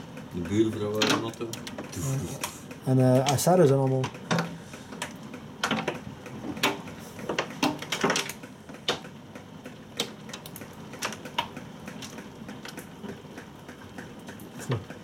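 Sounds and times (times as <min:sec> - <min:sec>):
rain ticking on hard surface: 0:09.4 - 0:15.0.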